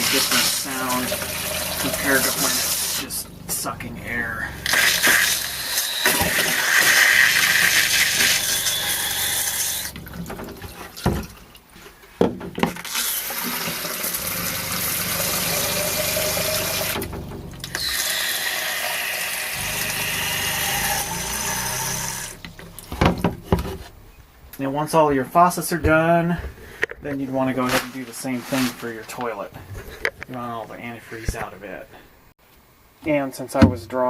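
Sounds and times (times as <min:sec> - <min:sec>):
faucet water running into cup: 0:00.0 - 0:03.4, 0:04.7 - 0:10.0, 0:12.8 - 0:17.0, 0:17.8 - 0:23.2
steady low hum: 0:00.0 - 0:12.6, 0:14.1 - 0:18.5, 0:19.5 - 0:34.0.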